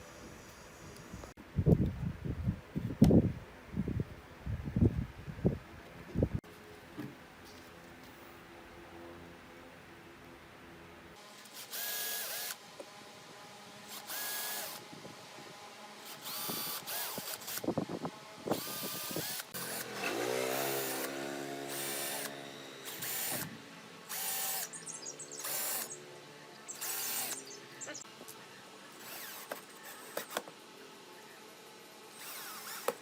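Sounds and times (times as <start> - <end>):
cordless drill motor whining: 11.5 - 12.6, 13.8 - 15.2, 16.0 - 28.0, 28.9 - 30.5, 32.0 - 33.0.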